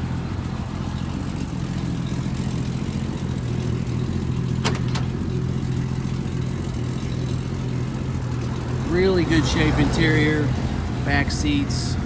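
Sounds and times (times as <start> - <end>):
car engine idling: 0.0 - 12.0
car door latch clicks: 4.6 - 5.2.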